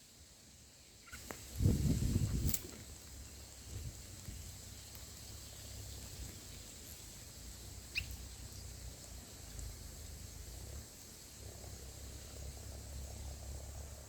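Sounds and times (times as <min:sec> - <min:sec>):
steady hiss: 0:00.0 - 0:14.0
high bird chirp: 0:07.9 - 0:08.7.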